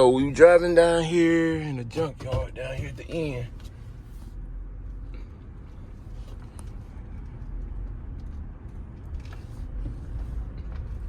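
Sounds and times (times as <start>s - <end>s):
vehicle driving rumble: 0.0s - 11.0s.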